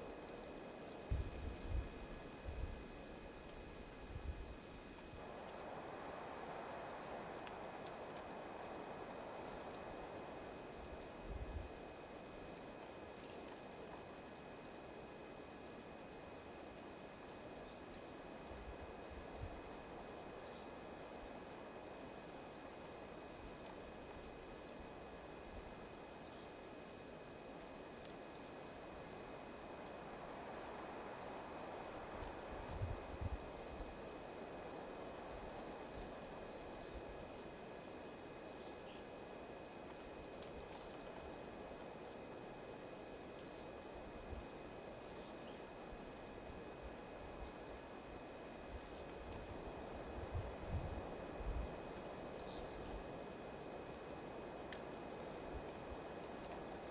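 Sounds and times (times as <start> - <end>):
faint outdoor ambience: 0.0 - 56.9
small birds chip calls: 16.8 - 21.2, 31.2 - 37.6, 48.5 - 49.1, 51.4 - 53.0.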